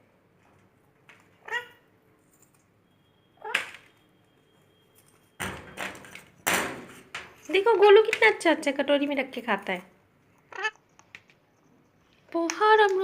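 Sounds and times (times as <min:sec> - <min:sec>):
high-pitched vocal calls: 0:10.4 - 0:10.8.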